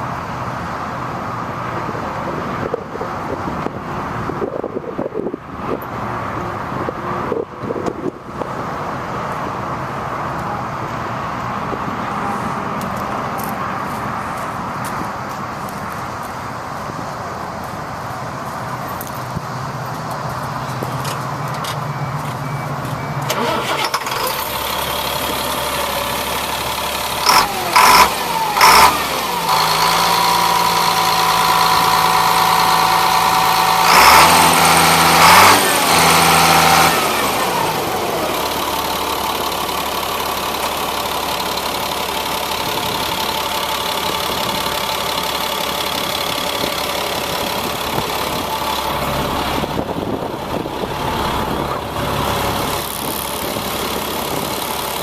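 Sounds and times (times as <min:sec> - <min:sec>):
truck engine starting and idling: 0:00.0 - 0:55.0.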